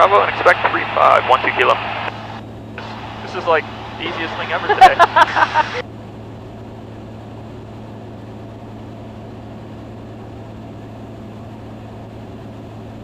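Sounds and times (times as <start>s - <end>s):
light aircraft engine drone: 0.0s - 13.0s.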